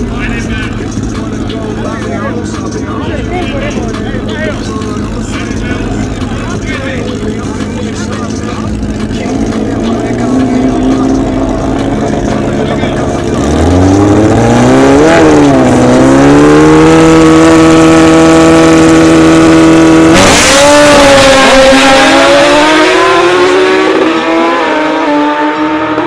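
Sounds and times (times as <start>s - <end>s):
motorcycle engines revving: 0.0s - 26.0s
loud engine burst: 19.6s - 24.4s.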